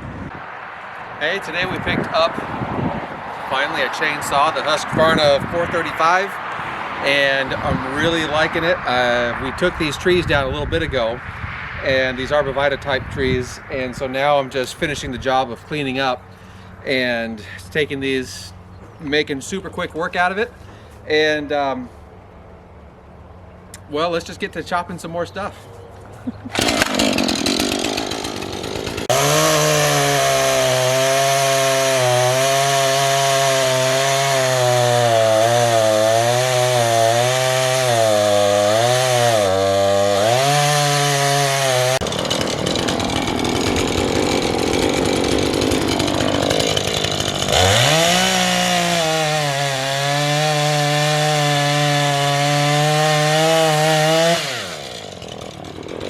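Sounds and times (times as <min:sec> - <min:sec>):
chainsaw cutting wood: 0:26.5 - 0:56.0.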